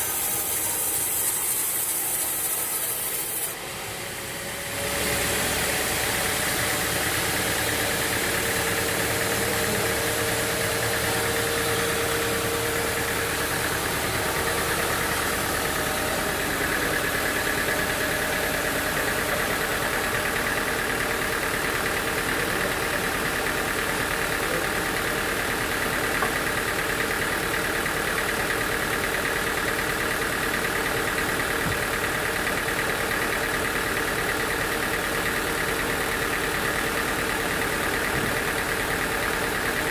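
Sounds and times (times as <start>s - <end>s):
steady machine whine: 0.0s - 29.2s
machinery hum: 3.6s - 21.6s.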